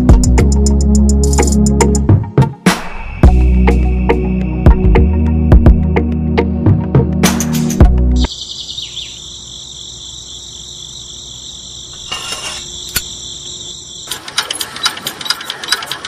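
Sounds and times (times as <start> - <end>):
starting crank click: 14.1 - 16.0.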